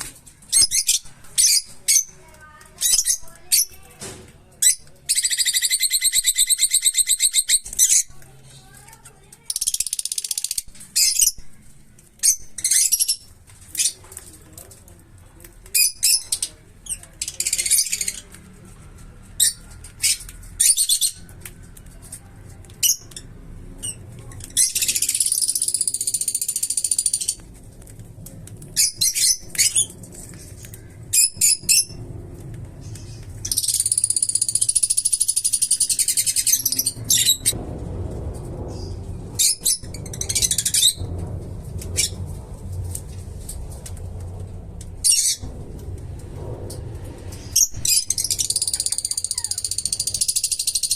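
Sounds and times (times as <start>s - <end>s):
parrots chirping: 0.5s - 2.2s, 2.8s - 3.8s, 4.6s - 8.2s, 9.5s - 11.5s, 12.2s - 14.0s, 23.8s - 27.4s, 32.9s - 37.6s, 47.4s - 50.9s
parrot harsh chattering calls: 48.1s - 50.9s.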